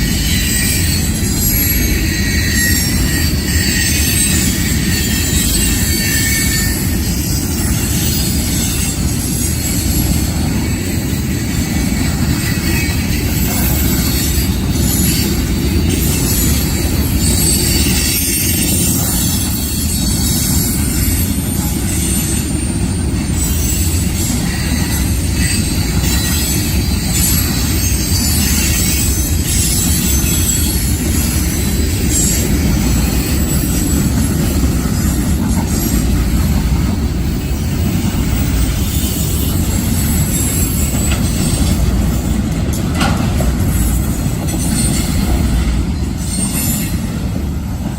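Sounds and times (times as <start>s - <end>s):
freight train cars rumbling: 0.0s - 47.9s.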